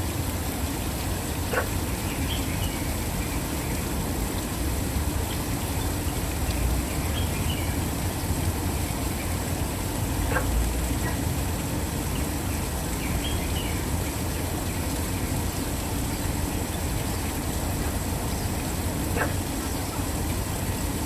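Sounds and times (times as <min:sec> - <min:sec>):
waterfall rushing: 0:00.0 - 0:21.0
faint bird calls: 0:19.1 - 0:20.1.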